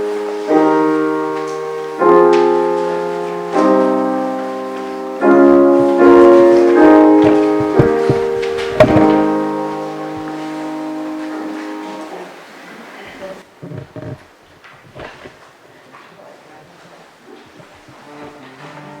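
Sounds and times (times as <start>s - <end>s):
short knocks: 5.6s - 9.5s, 13.4s - 15.6s, 17.4s - 18.1s.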